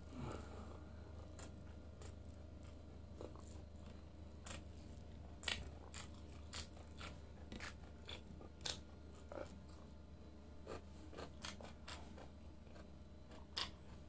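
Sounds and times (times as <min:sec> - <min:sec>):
steady low hum: 0:00.0 - 0:14.0
meat snapping: 0:05.4 - 0:08.8
chewing with wet mouth clicks: 0:05.4 - 0:09.6, 0:10.6 - 0:13.9.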